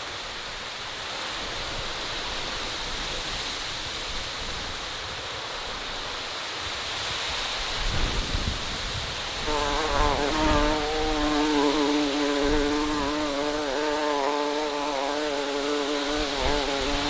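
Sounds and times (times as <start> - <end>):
steady hiss: 0.0 - 17.0
bee buzzing in flight: 9.3 - 17.0.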